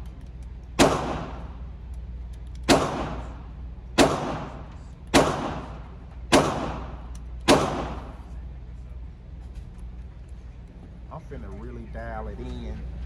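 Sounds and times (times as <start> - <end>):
pistol shots echoing indoors: 0.8 - 1.6, 2.6 - 8.2.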